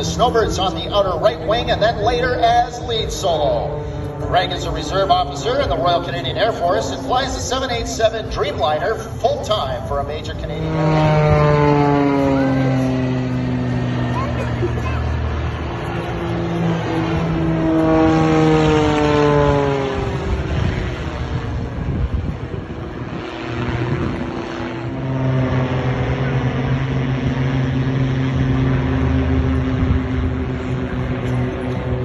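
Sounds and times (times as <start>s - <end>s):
aircraft engine flying past: 0.0s - 32.0s.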